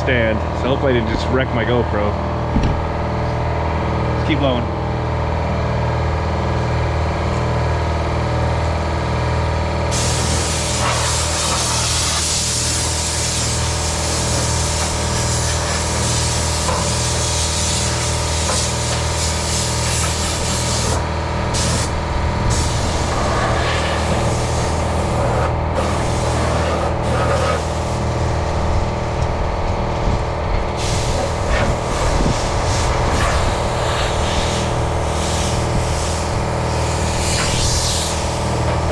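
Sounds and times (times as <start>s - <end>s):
low mechanical hum: 0.0s - 38.9s
air blow gun hissing: 9.8s - 28.2s, 30.8s - 38.9s.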